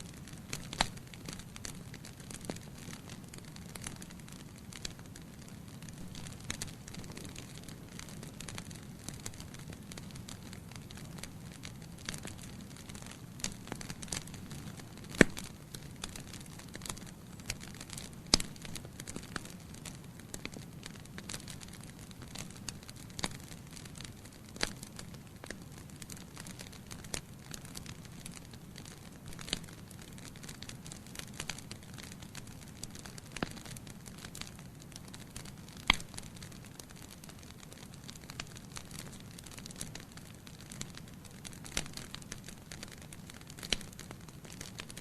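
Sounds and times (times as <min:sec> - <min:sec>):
wood fire crackling and popping: 0:00.0 - 0:45.0.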